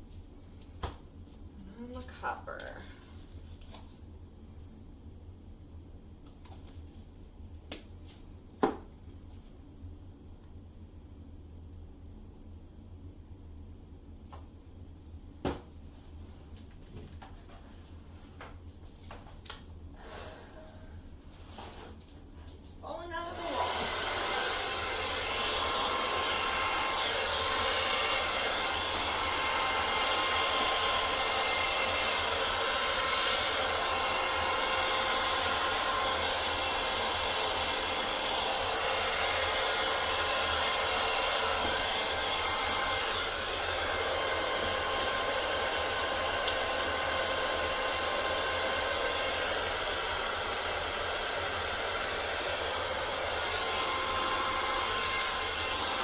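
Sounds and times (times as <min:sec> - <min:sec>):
hair dryer blowing: 0:20.0 - 0:21.0, 0:22.9 - 0:56.0.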